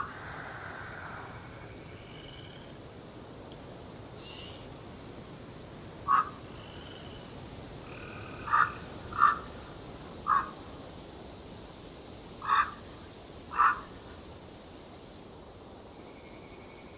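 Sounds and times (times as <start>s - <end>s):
forest hiss: 0.0s - 16.9s
faint high bird chirps: 15.9s - 16.9s.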